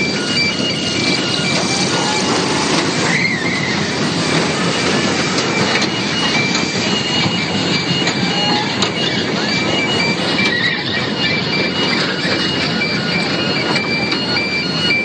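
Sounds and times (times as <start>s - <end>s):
short high tones: 0.0s - 3.8s
ride machinery rumble and clatter: 0.0s - 15.0s.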